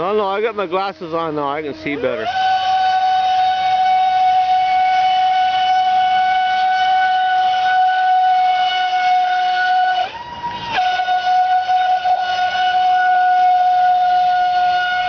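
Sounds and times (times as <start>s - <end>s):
electric boat motor whining: 0.0s - 15.0s.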